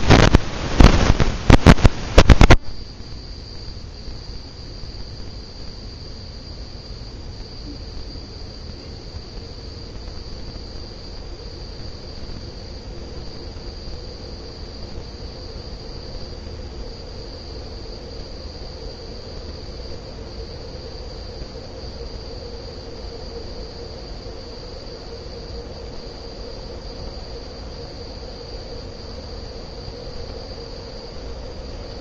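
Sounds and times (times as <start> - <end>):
ceiling fan motor hum: 0.0 - 32.0
high-pitched whine: 0.0 - 32.0.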